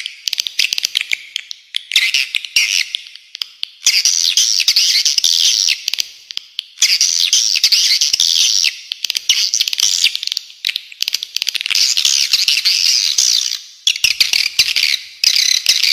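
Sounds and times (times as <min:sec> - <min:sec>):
bird song: 0:06.7 - 0:11.0, 0:11.7 - 0:15.9.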